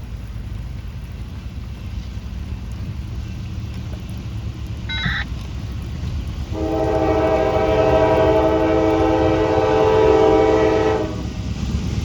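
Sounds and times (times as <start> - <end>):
diesel locomotive rumble: 0.0 - 12.0
short high tone: 4.9 - 5.2
train air horn chord: 6.5 - 11.2.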